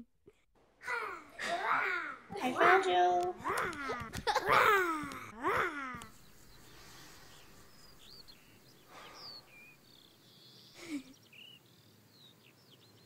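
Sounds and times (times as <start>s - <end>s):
child-like voice: 0.8s - 6.1s
faint birds chirping: 0.8s - 13.0s.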